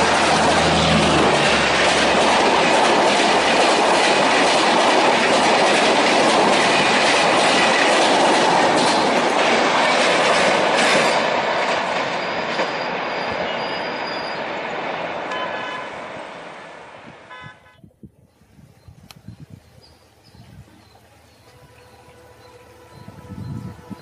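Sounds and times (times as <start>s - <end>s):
train rushing past: 0.0s - 17.3s, 20.6s - 24.0s.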